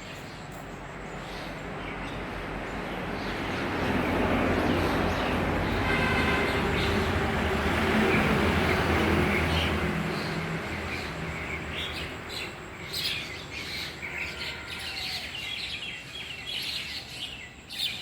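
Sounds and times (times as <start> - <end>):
birds chirping: 0.0 - 18.0
low rumble of passing traffic: 0.0 - 18.0.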